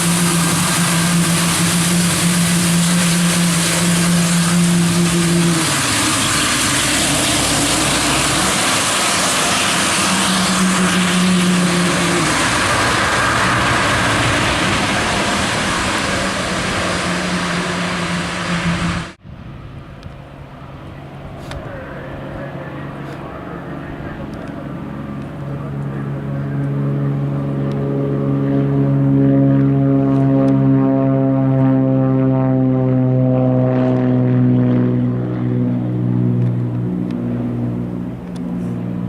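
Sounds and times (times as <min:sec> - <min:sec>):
aircraft engine noise: 0:00.0 - 0:39.0
low hum: 0:00.0 - 0:39.0.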